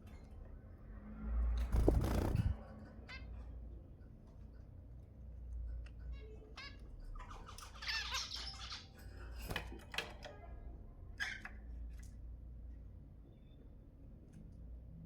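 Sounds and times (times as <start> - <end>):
finches calling and singing: 6.6 - 9.0.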